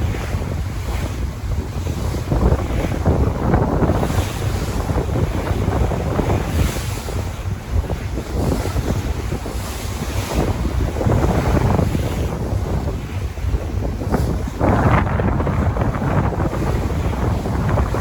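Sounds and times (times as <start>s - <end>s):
sea waves washing: 0.0s - 18.0s
wind buffeting microphone: 0.0s - 18.0s.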